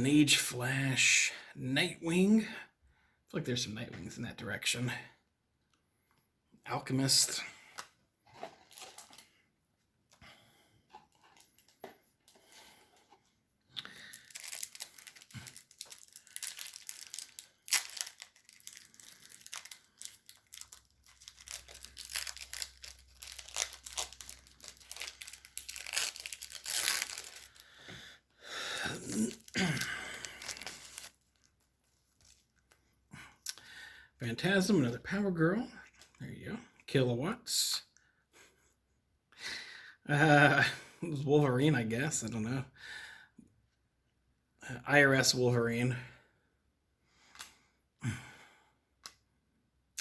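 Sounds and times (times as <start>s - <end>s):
wrapper tearing and crinkling: 8.5s - 9.3s, 13.9s - 27.8s, 29.2s - 32.7s.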